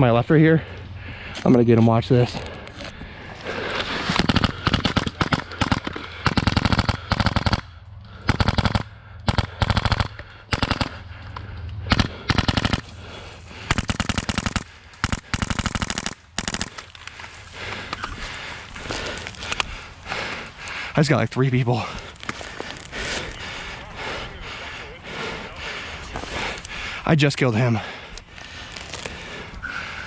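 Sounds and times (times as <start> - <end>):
airsoft rifle firing bursts: 4.0 - 11.2, 11.9 - 17.0.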